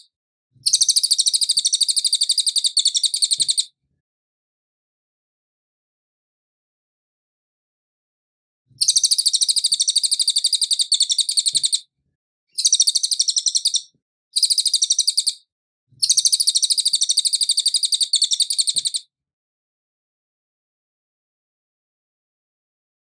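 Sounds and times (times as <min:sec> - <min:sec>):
songbird chirping rapidly: 0:00.6 - 0:03.7, 0:08.8 - 0:11.9, 0:12.5 - 0:19.1.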